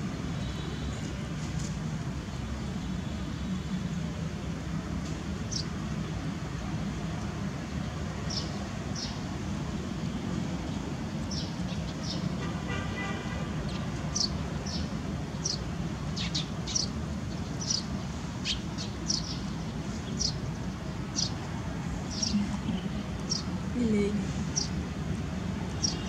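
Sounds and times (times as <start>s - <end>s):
small birds chirping: 5.4s - 6.0s, 7.6s - 9.4s, 10.6s - 12.6s, 13.6s - 25.0s, 25.7s - 26.0s.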